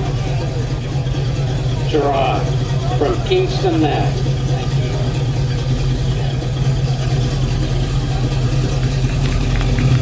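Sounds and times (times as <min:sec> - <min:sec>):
car engine running steadily: 0:00.0 - 0:10.0.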